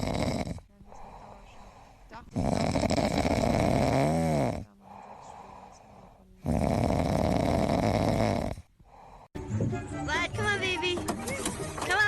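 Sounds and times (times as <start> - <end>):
pet snoring loudly: 0.0 - 5.2, 5.9 - 9.3.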